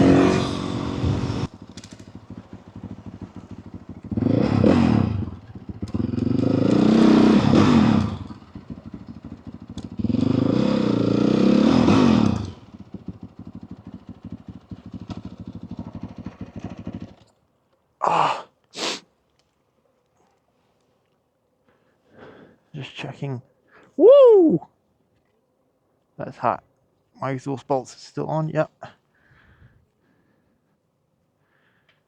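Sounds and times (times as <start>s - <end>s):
motorcycle engine revving: 0.0s - 17.3s.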